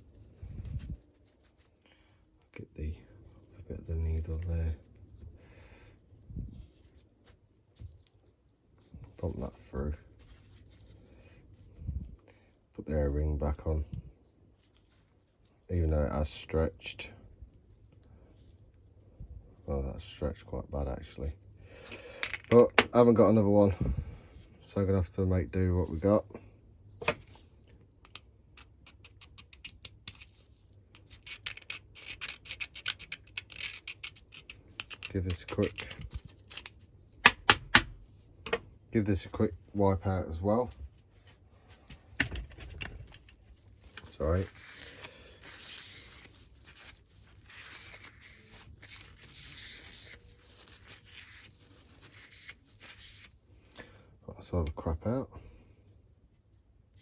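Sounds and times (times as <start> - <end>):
scraping and rubbing: 41.1 - 53.4.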